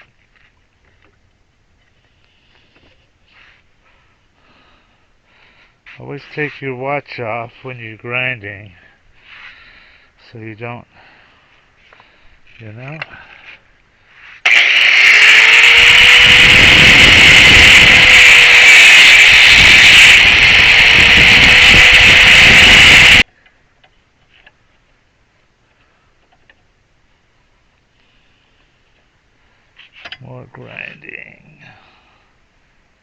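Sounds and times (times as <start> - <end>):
power grinder grinding: 14.4 - 23.2.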